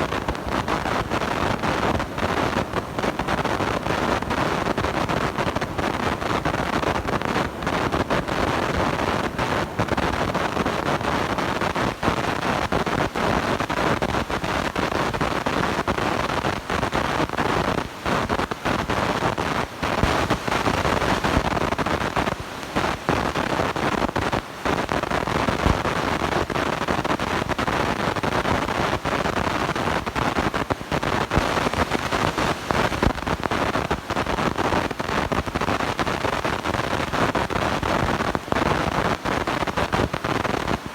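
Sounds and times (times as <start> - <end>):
distorted microphone rushing noise: 0.0 - 40.9.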